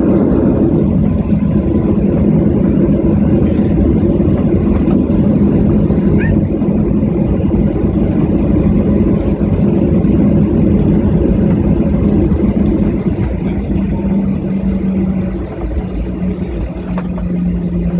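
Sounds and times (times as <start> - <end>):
jet cabin drone: 0.0 - 17.9.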